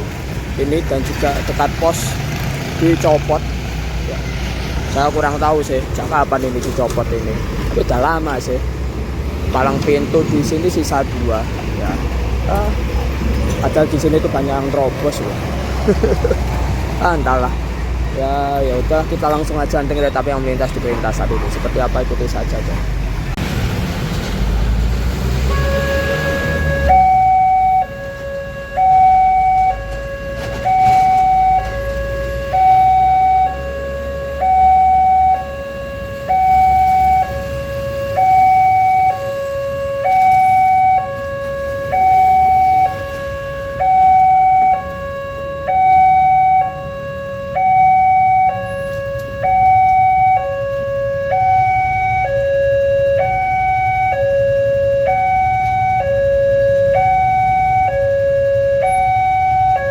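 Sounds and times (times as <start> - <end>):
level crossing two-tone alarm: 25.5 - 59.9.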